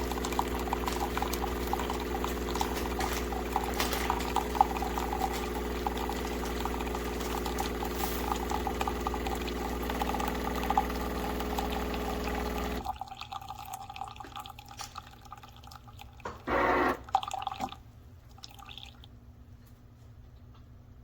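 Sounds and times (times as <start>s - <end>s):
coffee maker humming: 0.0s - 14.6s, 15.6s - 17.4s
coffee dripping and ticking: 0.0s - 16.4s.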